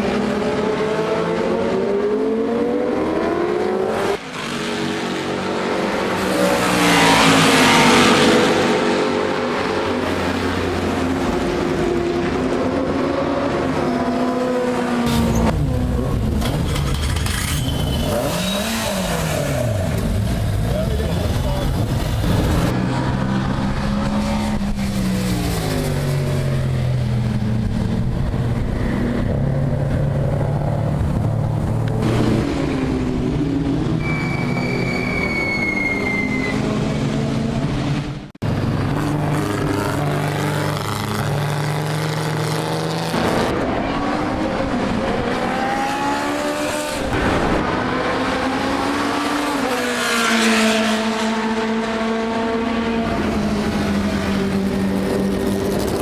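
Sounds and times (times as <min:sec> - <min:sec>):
high squeal: 0:16.4 - 0:19.3, 0:34.0 - 0:36.9.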